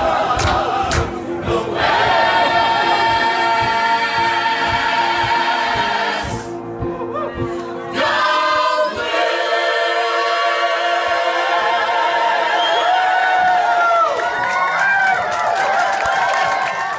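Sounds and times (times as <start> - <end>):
choir singing long notes: 0.0 - 6.6, 7.9 - 14.1.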